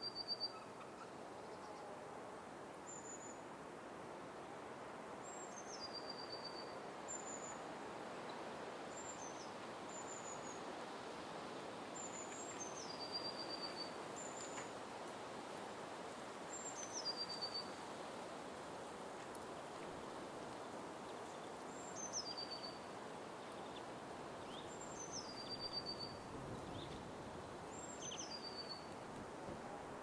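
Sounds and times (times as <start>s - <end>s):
steady rushing hiss: 17.6s - 30.0s.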